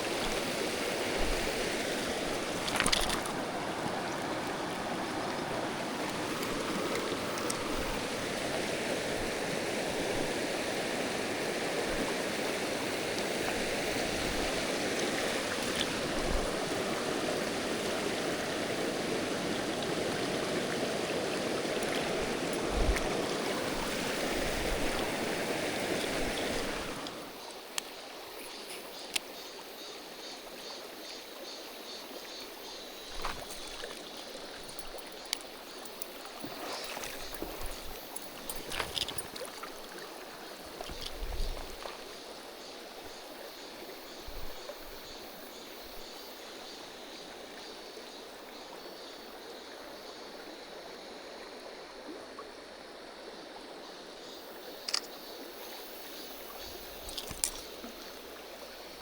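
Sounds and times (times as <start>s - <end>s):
stream rushing over rocks: 0.0s - 28.4s, 33.1s - 43.1s.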